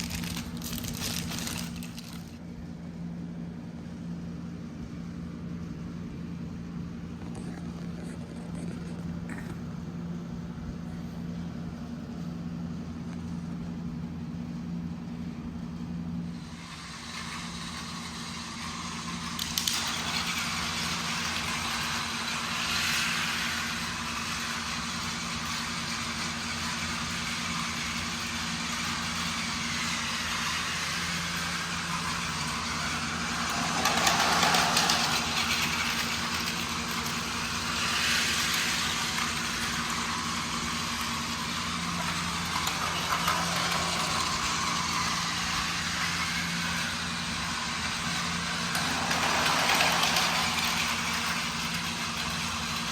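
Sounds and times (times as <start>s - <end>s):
toy train motor whirring: 0.0s - 2.4s, 16.3s - 52.9s
toy train rolling on plastic track: 0.0s - 2.4s, 16.3s - 52.9s.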